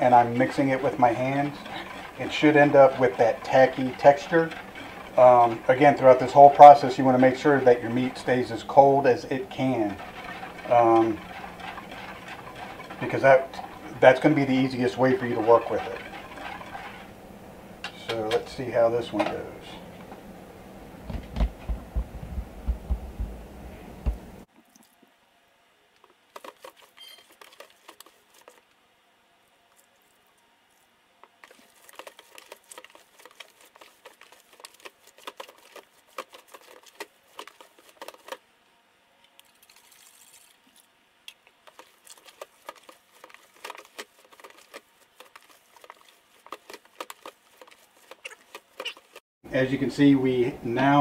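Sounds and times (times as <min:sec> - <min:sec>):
low rhythmic thudding: 0:21.0 - 0:24.4.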